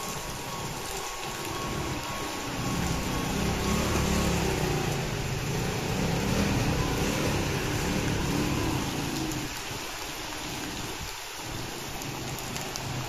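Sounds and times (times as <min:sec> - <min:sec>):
heavy rain on wet pavement: 0:00.0 - 0:13.0
scooter engine running: 0:01.5 - 0:09.6.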